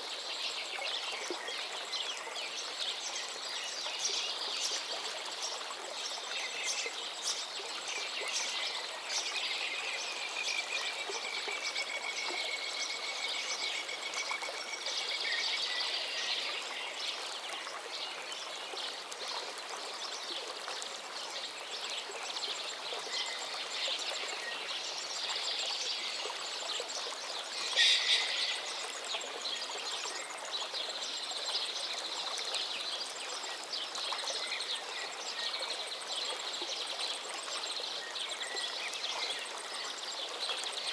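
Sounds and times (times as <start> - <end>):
steady outdoor hiss: 0.0 - 40.9
birds chirping and singing: 27.6 - 28.7.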